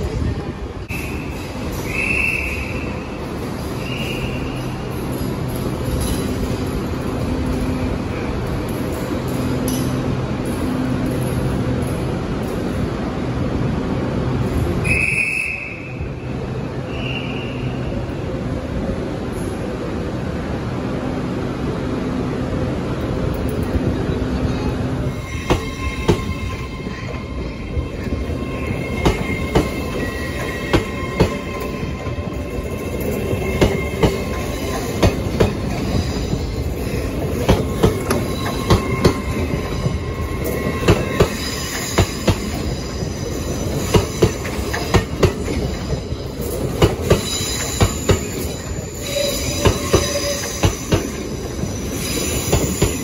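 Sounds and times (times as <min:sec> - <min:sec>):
train rumble: 0:00.0 - 0:53.0
high-pitched wheel squeal: 0:25.1 - 0:34.7, 0:47.2 - 0:53.0
train wheels clacking over rail joints: 0:28.8 - 0:48.6.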